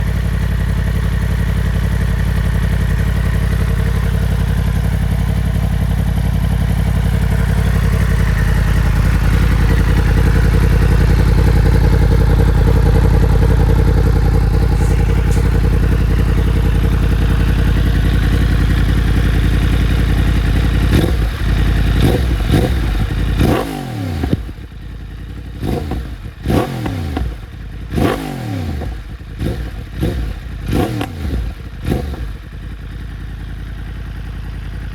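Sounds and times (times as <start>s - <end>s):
motorcycle engine revving: 0.0s - 34.9s
exhaust pops and bangs: 14.5s - 16.7s.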